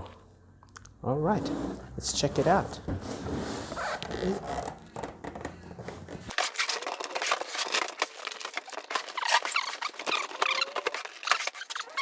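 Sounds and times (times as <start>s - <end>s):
squeaky scrapes: 1.3s - 12.0s
packaging crinkling and rustling: 6.3s - 12.0s.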